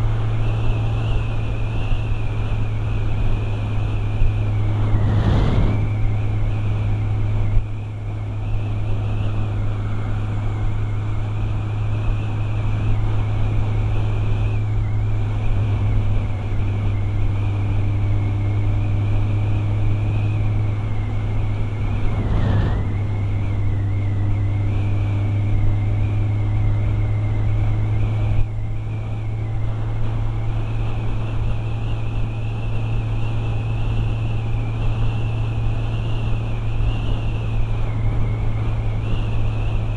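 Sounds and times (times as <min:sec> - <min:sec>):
thin high whine: 0:00.0 - 0:39.9
wind rushing: 0:04.0 - 0:07.6, 0:20.6 - 0:25.3.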